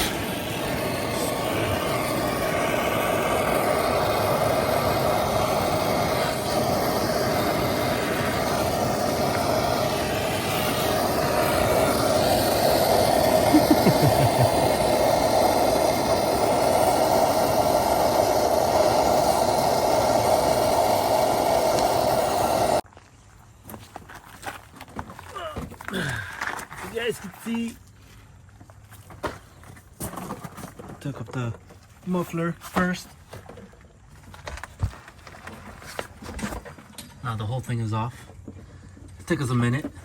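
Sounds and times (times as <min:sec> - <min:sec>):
gas torch burning: 0:00.0 - 0:22.9.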